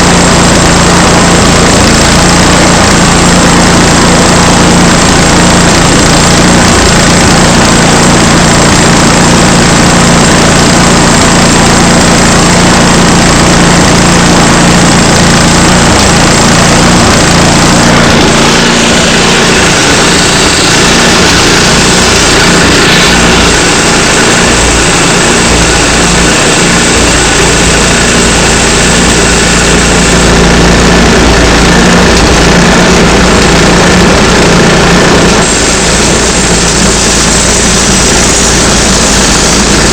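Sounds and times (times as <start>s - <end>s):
sawmill gasoline engine running: 0.0s - 39.9s.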